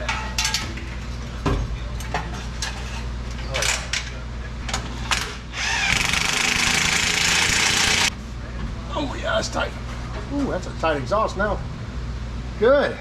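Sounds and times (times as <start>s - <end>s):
power tool running: 5.6s - 8.1s.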